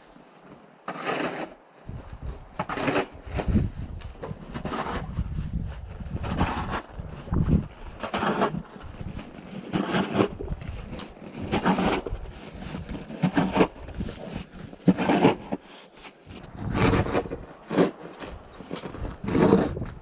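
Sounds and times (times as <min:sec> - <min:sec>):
shovel scraping snow: 0:00.8 - 0:01.6, 0:02.6 - 0:19.8.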